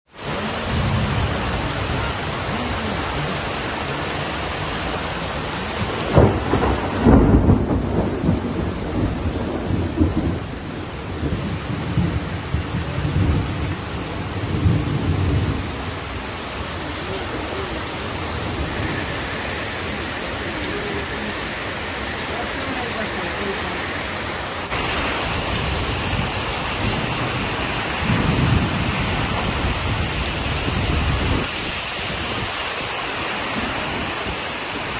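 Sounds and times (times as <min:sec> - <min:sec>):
heavy rain: 0:00.1 - 0:34.9
thunderclap and rumbling: 0:00.2 - 0:16.2, 0:24.7 - 0:34.9.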